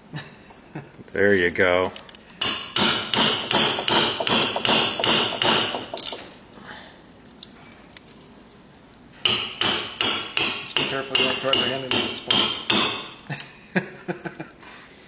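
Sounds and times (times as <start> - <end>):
hammer striking chisel: 2.4 - 6.3, 9.2 - 13.2.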